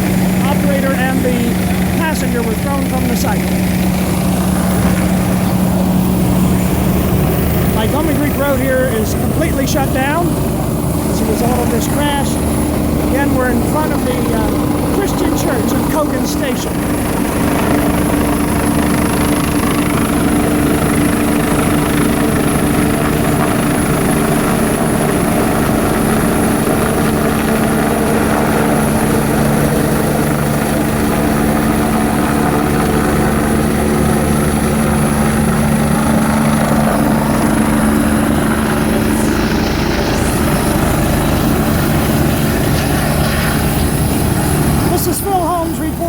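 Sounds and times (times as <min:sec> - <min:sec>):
helicopter rotor and engine: 0:00.0 - 0:46.0.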